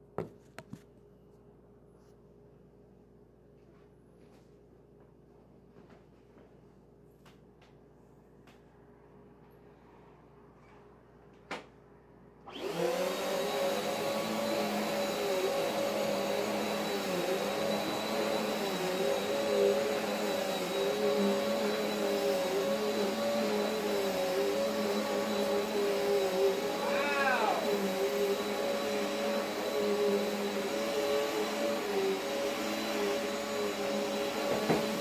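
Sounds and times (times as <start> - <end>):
vacuum cleaner motor whining: 12.4 - 35.0.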